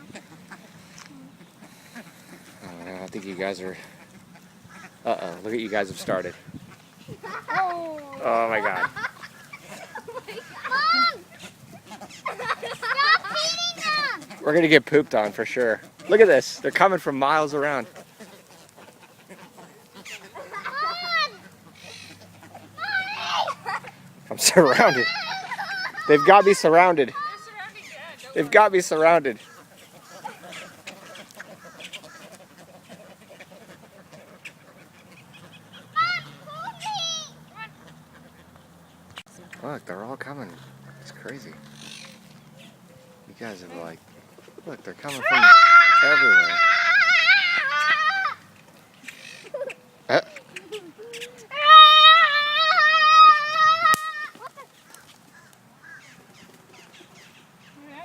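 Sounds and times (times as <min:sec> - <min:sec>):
ducks quacking: 0:00.0 - 0:58.0
person's high-pitched cry: 0:22.8 - 0:23.6, 0:50.8 - 0:54.6.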